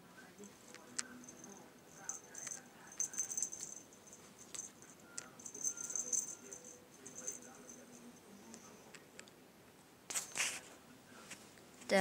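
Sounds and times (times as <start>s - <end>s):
toy jingling rattle: 0.4s - 8.1s.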